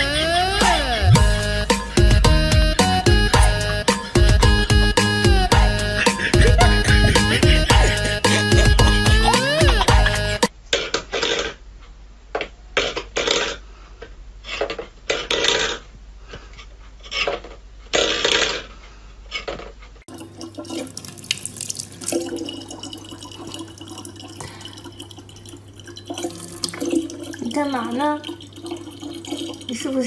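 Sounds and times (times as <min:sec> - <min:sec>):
tap water running into plastic bottle: 0:20.1 - 0:30.0.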